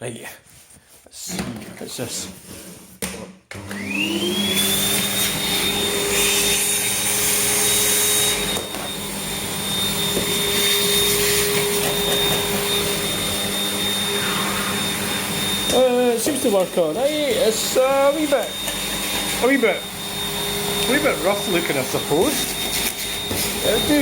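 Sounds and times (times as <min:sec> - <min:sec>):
vacuum cleaner whining: 0:03.5 - 0:24.0.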